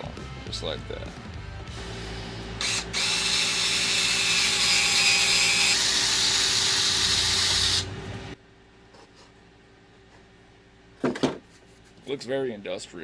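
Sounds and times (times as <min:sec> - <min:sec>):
power drill running: 0:02.0 - 0:07.9.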